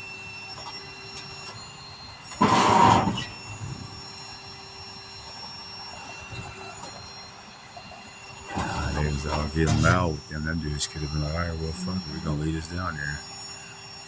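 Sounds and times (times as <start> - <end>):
faint thin whining tones: 0.0 - 14.0
steady mechanical hum: 0.0 - 14.0.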